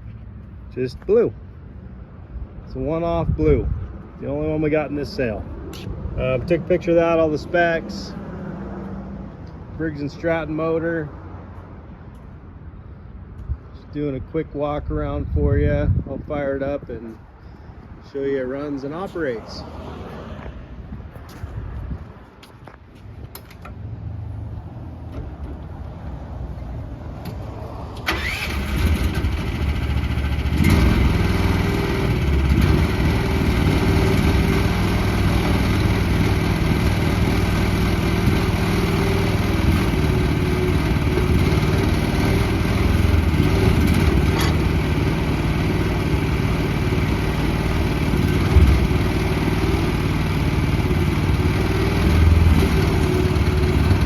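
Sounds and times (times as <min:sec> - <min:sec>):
small engine starting and running: 0:28.0 - 0:54.0.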